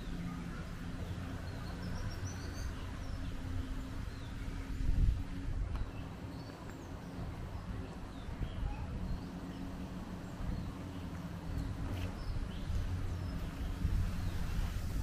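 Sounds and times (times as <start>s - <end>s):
low outdoor hum: 0.0s - 15.0s.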